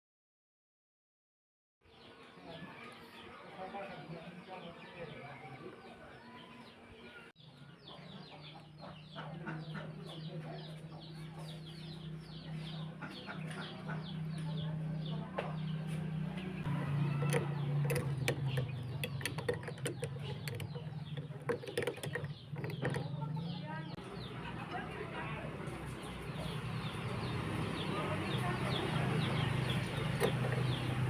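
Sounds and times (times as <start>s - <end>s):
birds chirping: 1.8s - 31.0s
sharp clicks and knocks: 16.7s - 23.5s, 29.6s - 31.0s.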